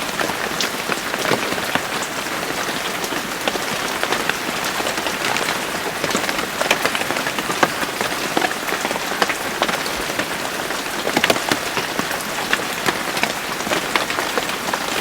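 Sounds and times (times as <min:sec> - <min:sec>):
raindrops ticking on hard surface: 0:00.0 - 0:15.0
steady rain hiss: 0:00.0 - 0:15.0.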